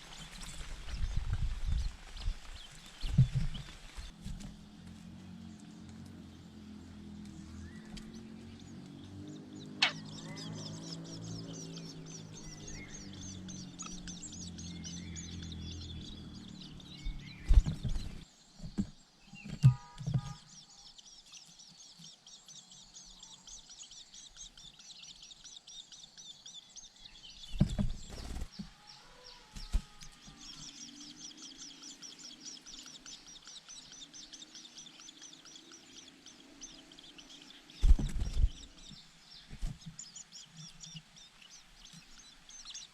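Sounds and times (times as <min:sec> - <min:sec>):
birds chirping: 0:00.0 - 0:42.9
low drone: 0:04.2 - 0:18.2.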